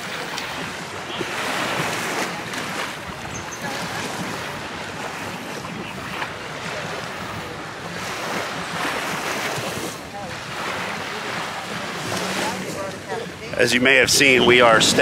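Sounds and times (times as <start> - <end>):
surf washing on sand: 0.0 - 15.0
wind buffeting microphone: 0.0 - 15.0.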